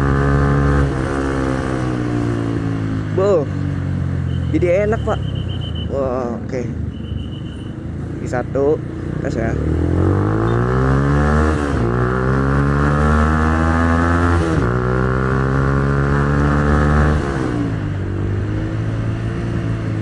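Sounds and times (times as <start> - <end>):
motorcycle engine accelerating: 0.0 - 4.4, 8.8 - 20.0.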